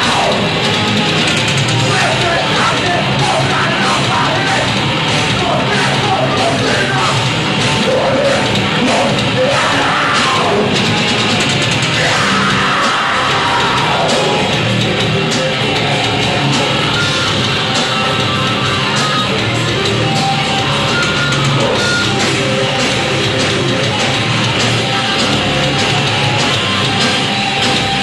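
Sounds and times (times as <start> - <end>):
heavy guitars: 0.0 - 28.0
heavy metal band playing live: 0.0 - 28.0
shouted vocals: 0.0 - 28.0.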